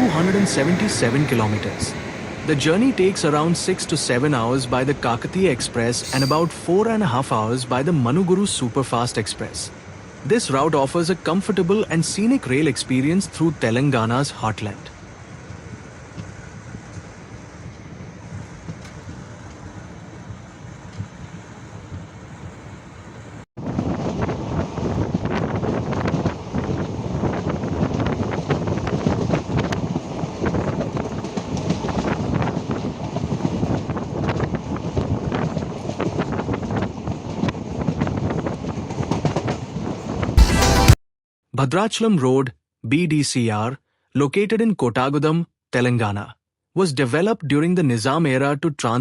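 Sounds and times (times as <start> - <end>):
moving train rumble: 0.0 - 40.4
wind-like rushing noise: 23.6 - 40.4.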